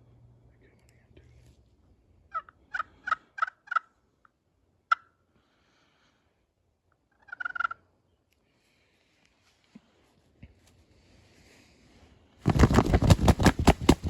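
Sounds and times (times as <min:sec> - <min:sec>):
turkey yelping: 0:02.3 - 0:03.9, 0:04.9 - 0:05.1, 0:07.2 - 0:07.8
turkey gobble rattle: 0:02.3 - 0:04.0, 0:04.9 - 0:05.2, 0:07.1 - 0:07.8.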